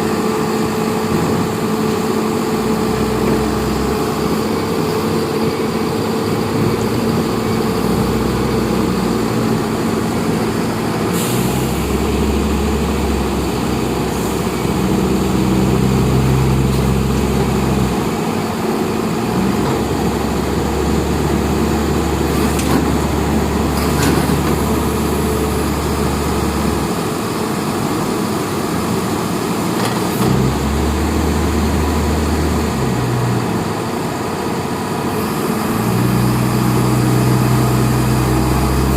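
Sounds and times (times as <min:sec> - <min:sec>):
engine rumbling: 0:00.0 - 0:38.9.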